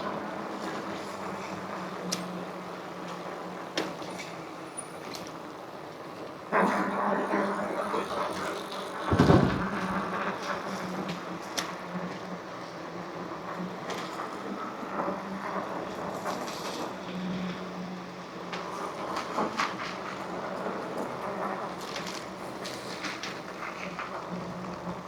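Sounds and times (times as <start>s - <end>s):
loud low thump: 9.1s - 10.2s.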